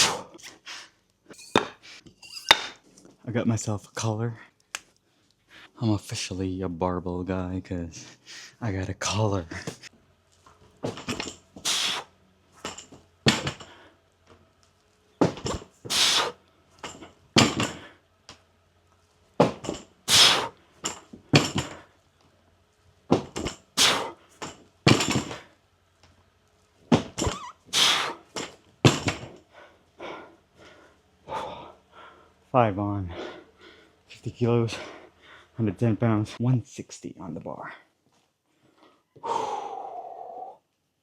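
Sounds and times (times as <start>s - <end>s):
man breathing hard: 11.6s - 12.1s, 29.4s - 32.4s, 33.0s - 34.0s, 34.7s - 35.6s, 38.6s - 40.6s.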